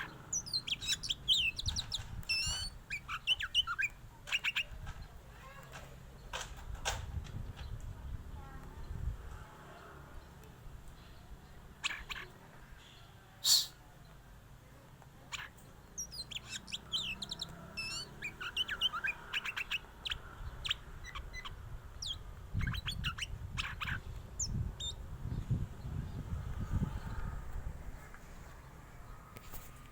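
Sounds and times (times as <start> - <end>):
bird whistles and chirps: 0.4 - 4.8, 13.4 - 13.8, 15.3 - 25.0.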